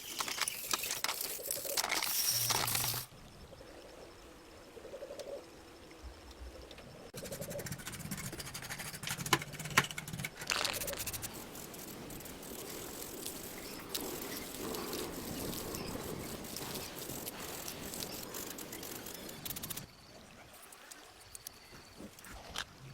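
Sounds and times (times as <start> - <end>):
clicking and rattling of metal model: 0.0 - 3.1, 7.6 - 11.3.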